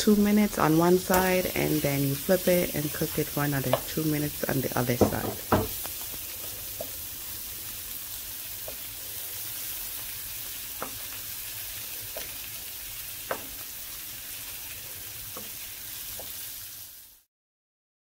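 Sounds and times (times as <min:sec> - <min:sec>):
shrimp sizzling in a frying pan: 0:00.0 - 0:17.3
wooden spoon knocking a pan: 0:03.1 - 0:04.2, 0:04.8 - 0:07.1, 0:08.6 - 0:09.0, 0:10.6 - 0:11.2, 0:13.2 - 0:13.7.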